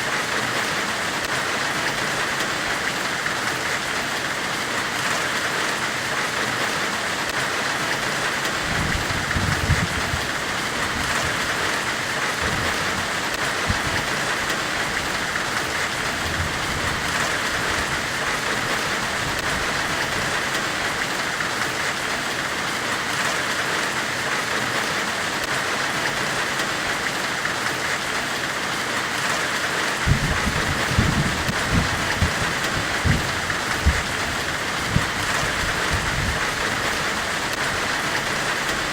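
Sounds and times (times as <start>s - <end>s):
low rumbling: 30.0s - 36.6s.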